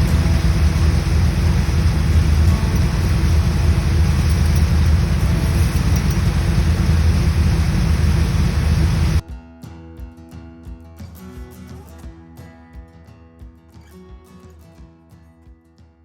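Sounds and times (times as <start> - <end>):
vehicle engine and road noise: 0.0 - 9.2
acoustic guitar music: 0.0 - 16.0.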